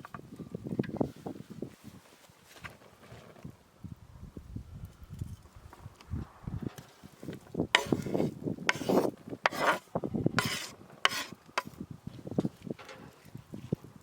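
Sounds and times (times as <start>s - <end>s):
utensil scraping a pan: 7.7s - 11.8s.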